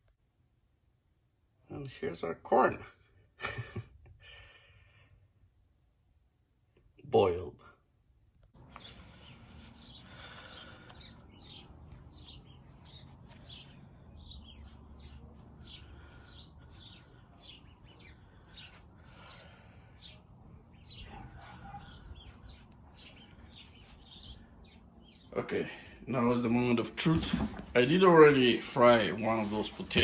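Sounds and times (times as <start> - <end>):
small birds chirping: 8.5 - 30.0.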